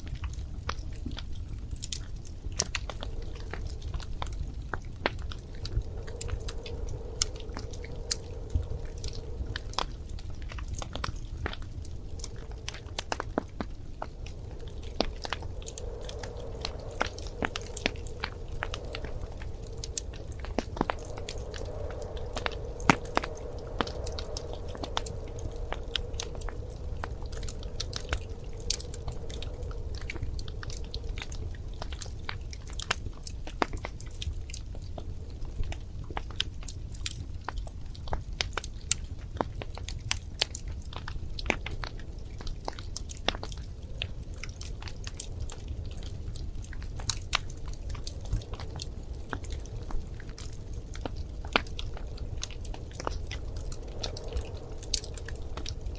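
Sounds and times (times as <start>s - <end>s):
wood fire crackling and popping: 0.0s - 55.9s.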